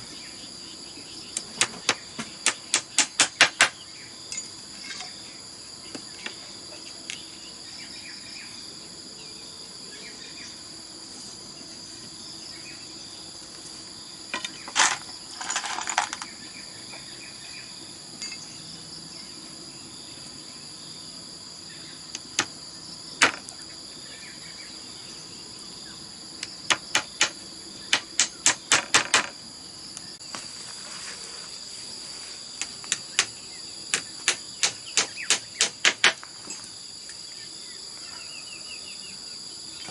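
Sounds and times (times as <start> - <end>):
tool knocking on bamboo: 26.7 - 29.4.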